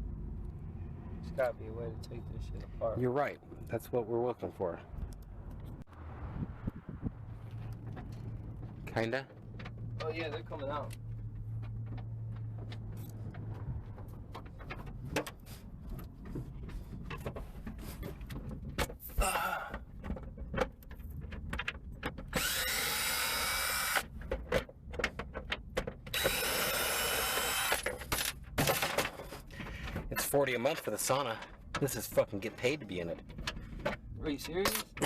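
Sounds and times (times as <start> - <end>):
clicks and knocks of handling: 7.6 - 22.3, 24.1 - 26.1, 27.8 - 35.0
power drill spinning up: 22.3 - 24.0, 26.1 - 27.9.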